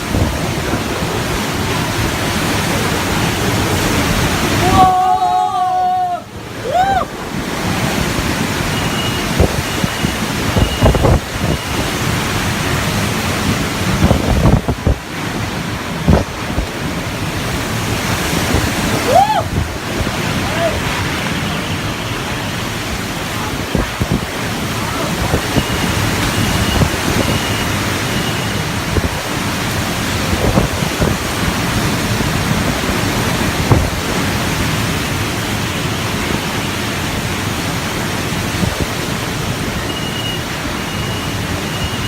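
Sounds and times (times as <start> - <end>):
wind buffeting microphone: 0.0 - 4.6, 7.1 - 21.2, 22.7 - 34.9
wind and driving rain: 0.0 - 42.0
high beep: 8.7 - 11.8, 25.5 - 28.6, 39.9 - 42.0.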